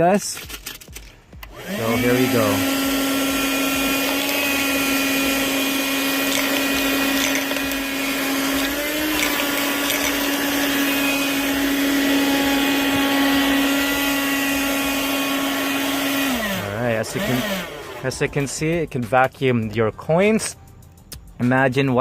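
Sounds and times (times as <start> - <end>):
handheld vacuum cleaner humming: 1.4 - 18.2
coins clicking in vacuum nozzle: 3.8 - 11.4.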